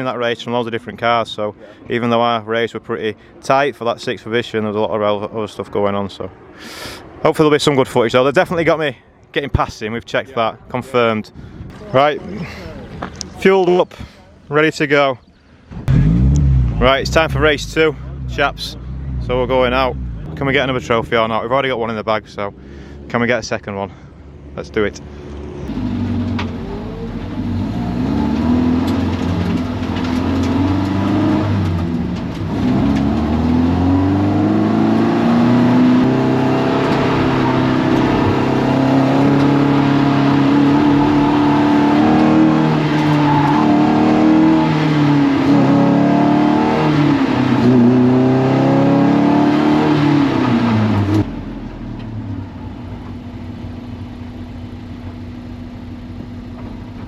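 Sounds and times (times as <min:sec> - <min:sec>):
steady engine hum: 0:15.3 - 0:43.5, 0:50.4 - 0:57.0
race car engine accelerating: 0:15.8 - 0:23.2, 0:25.0 - 0:52.3.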